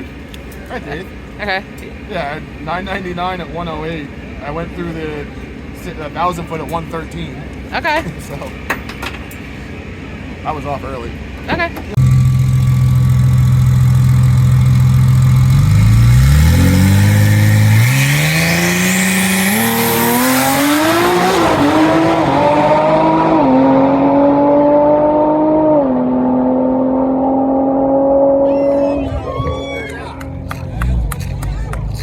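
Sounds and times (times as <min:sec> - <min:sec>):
race car engine accelerating: 0:11.9 - 0:32.0.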